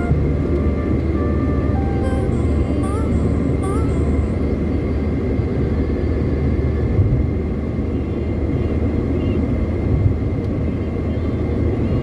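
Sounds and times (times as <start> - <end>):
faint steady high tone: 0.0 - 5.0
car road and engine rumble: 0.0 - 12.0.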